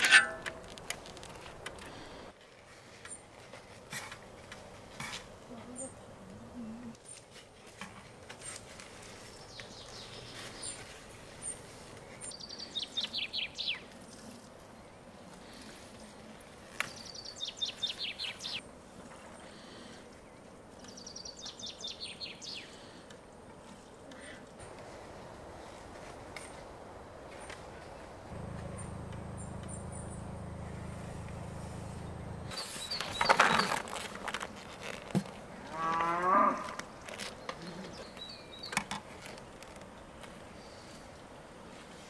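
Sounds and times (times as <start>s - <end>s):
outdoor background noise: 0.0s - 42.0s
songbird singing: 9.2s - 15.0s, 16.8s - 19.5s, 20.2s - 22.8s, 27.3s - 35.1s, 36.5s - 41.0s.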